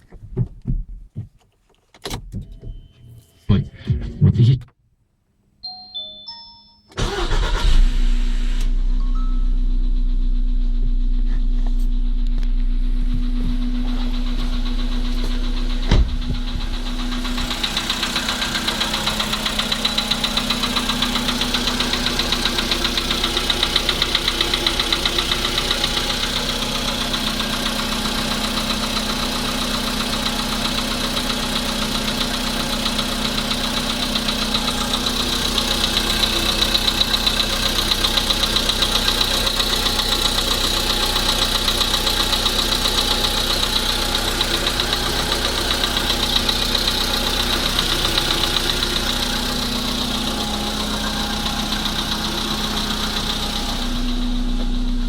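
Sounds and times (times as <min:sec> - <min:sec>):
car engine idling with knock: 0:00.0 - 0:01.4, 0:10.6 - 0:55.0
brief thump: 0:15.8 - 0:16.6.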